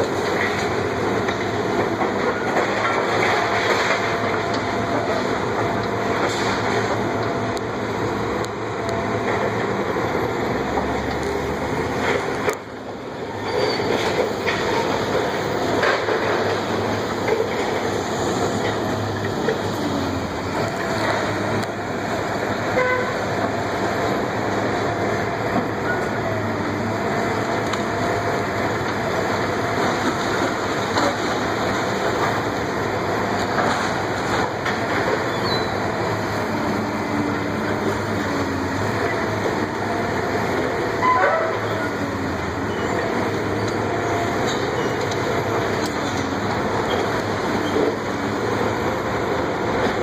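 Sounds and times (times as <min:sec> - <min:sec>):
demolition machinery working: 0:00.0 - 0:50.0
machinery squeals: 0:13.3 - 0:14.5, 0:35.3 - 0:35.8, 0:41.0 - 0:45.1.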